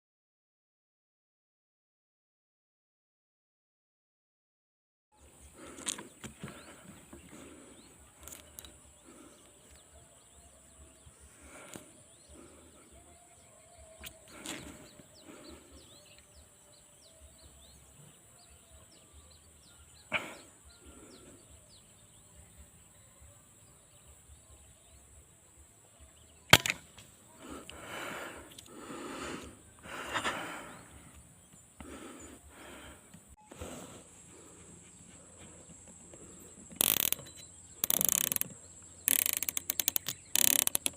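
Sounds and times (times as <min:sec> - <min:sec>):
bird chirps: 0:05.2 - 0:32.5, 0:33.3 - 0:40.9
insect-like hiss: 0:24.8 - 0:40.9.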